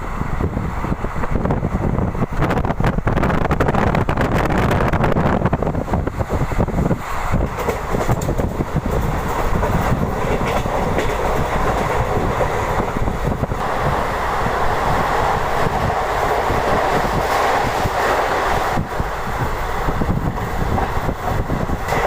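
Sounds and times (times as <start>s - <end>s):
train wheels clicking over rail joints: 5.6s - 22.0s.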